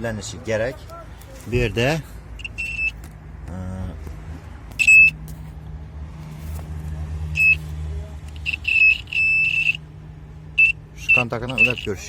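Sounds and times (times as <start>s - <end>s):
short high electronic beeps: 2.4s - 3.0s, 4.8s - 5.2s, 7.4s - 7.6s, 8.4s - 9.8s, 10.6s - 12.0s.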